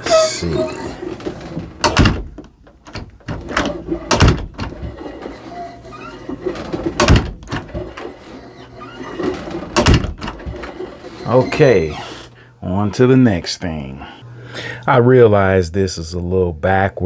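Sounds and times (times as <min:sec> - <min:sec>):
door and knob handling noise: 0:00.0 - 0:11.2
door latch knocking shut: 0:01.2 - 0:05.1.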